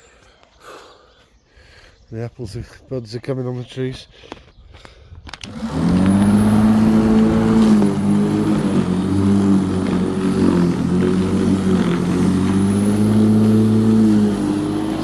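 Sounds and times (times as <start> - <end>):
electric lawnmower running: 5.4 - 15.0.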